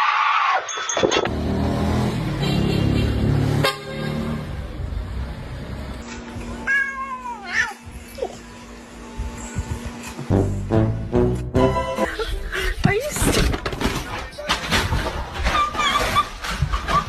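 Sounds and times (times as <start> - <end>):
low dense sound: 10.2 - 12.5.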